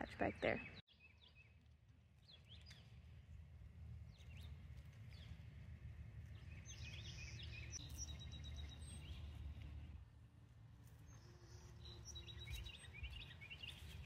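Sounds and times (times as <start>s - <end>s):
birds chirping: 0.0s - 1.6s, 6.3s - 10.0s, 11.0s - 14.0s.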